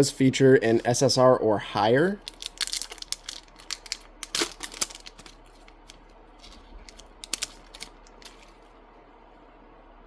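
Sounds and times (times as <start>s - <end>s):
foil wrapper rustling: 2.2s - 8.7s
cards clicking: 2.7s - 8.6s.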